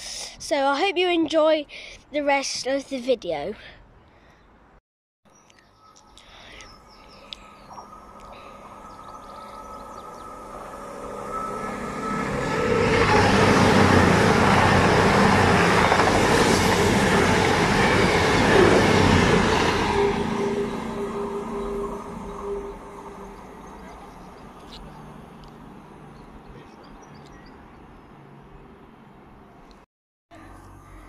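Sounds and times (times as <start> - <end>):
train passing at speed: 6.8 - 29.6.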